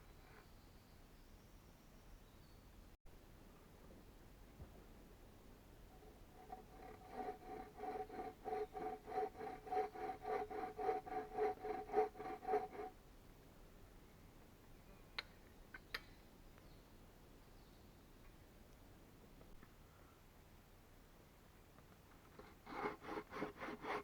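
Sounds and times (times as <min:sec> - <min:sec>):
hand saw cutting wood: 0:05.9 - 0:13.0, 0:22.4 - 0:24.0.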